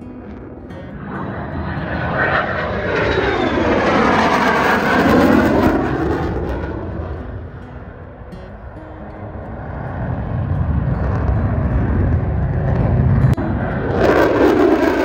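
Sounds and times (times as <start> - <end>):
propeller aircraft flying past: 0.1 - 15.0.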